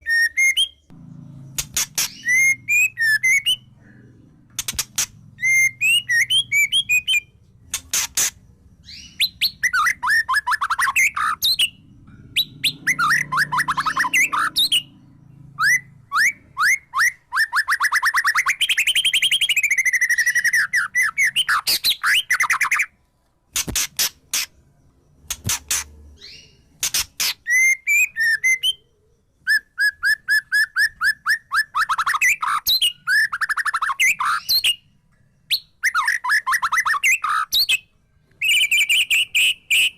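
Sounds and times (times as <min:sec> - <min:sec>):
songbird chirping and trilling: 0:00.0 - 0:39.9.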